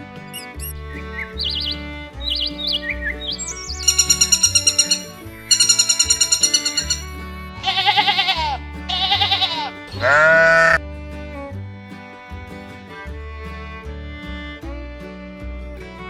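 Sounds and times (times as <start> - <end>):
background music with bass line: 0.0 - 16.0
bird chirping trill: 0.3 - 10.8
farm animal bleating: 0.3 - 10.8.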